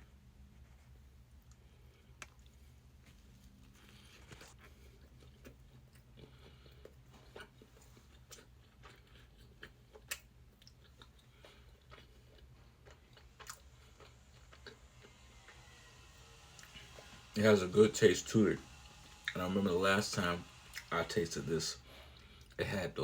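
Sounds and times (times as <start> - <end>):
steady low hum: 0.0 - 23.0
person chewing: 3.6 - 15.6, 21.8 - 22.6.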